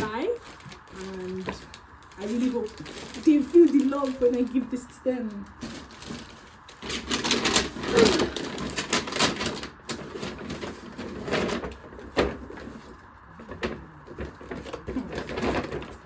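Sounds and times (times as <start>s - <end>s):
packaging rustling: 0.0s - 16.0s.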